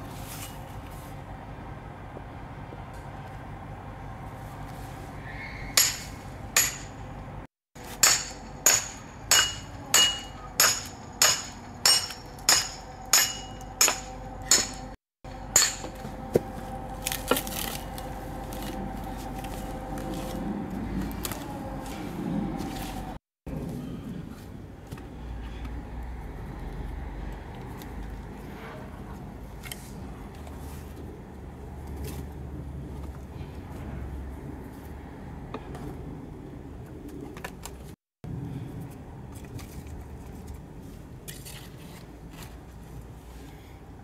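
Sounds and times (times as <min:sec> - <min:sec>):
hammer blows with metallic ring: 0:05.7 - 0:07.1, 0:07.8 - 0:16.3.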